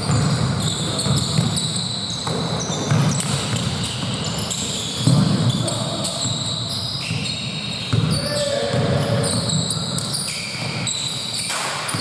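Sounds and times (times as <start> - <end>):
basketball bouncing on court: 0.0 - 12.0
sneakers squeaking: 0.0 - 12.0.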